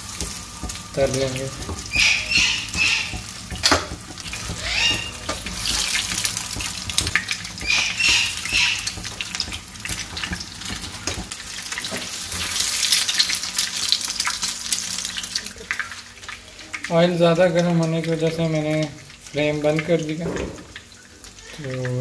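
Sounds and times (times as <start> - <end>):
patties sizzling in hot oil: 0.0 - 22.0.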